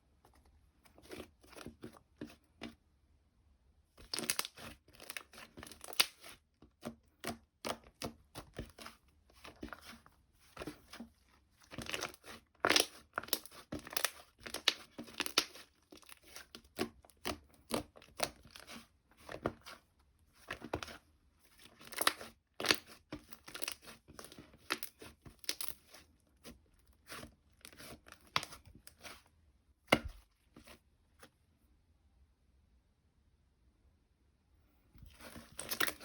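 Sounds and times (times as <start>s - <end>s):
slime squished by hand: 4.0s - 19.8s.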